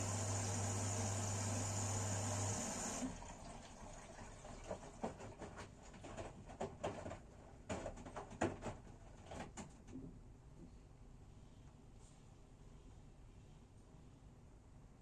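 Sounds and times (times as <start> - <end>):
washing machine humming: 0.0 - 9.6.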